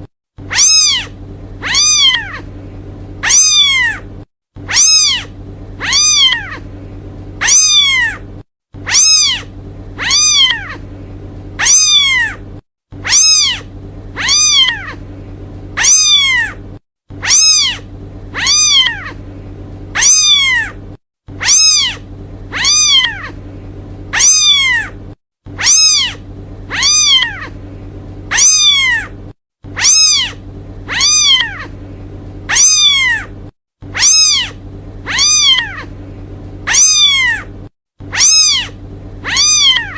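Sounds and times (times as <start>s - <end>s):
low hum: 0.0s - 39.9s
kitten meowing: 0.5s - 2.5s, 3.2s - 4.0s, 4.7s - 6.7s, 7.4s - 8.2s, 8.8s - 10.8s, 11.6s - 12.4s, 13.0s - 15.0s, 15.8s - 16.6s, 17.2s - 19.2s, 20.0s - 20.8s, 21.4s - 23.4s, 24.1s - 25.0s, 25.6s - 27.6s, 28.3s - 29.1s, 29.8s - 31.8s, 32.5s - 33.3s, 33.9s - 35.9s, 36.7s - 37.5s, 38.1s - 39.9s.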